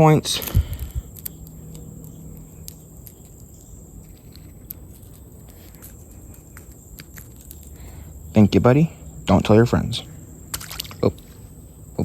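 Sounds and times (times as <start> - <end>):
insects droning: 0.0 - 12.0
handling noise clicks: 0.4 - 7.8.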